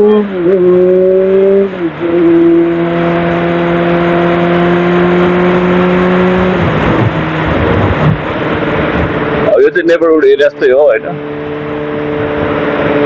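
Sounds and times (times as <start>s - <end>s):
motorcycle engine under throttle: 0.0s - 9.5s, 11.0s - 13.0s
wind noise: 1.8s - 9.6s.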